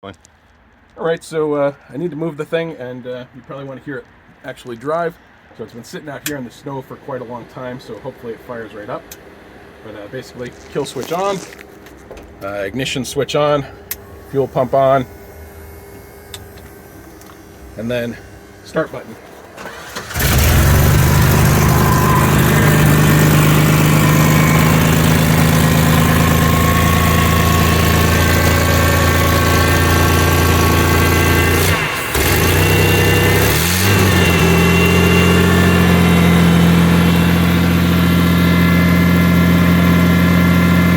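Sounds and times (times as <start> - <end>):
truck engine starting and idling: 17.3 - 40.9
engine revving: 18.8 - 40.9.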